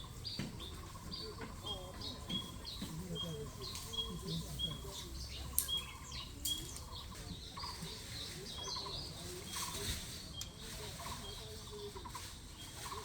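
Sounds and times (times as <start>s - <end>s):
high bird chirps: 0.0s - 9.8s
birds rattling calls: 0.0s - 13.0s.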